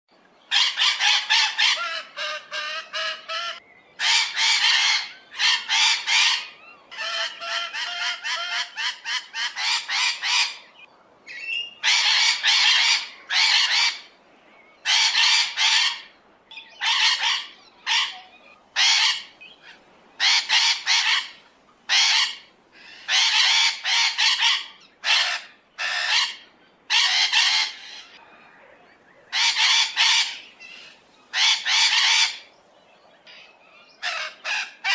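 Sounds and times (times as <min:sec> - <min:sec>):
large birds squawking and honking: 0:16.8 - 0:32.5.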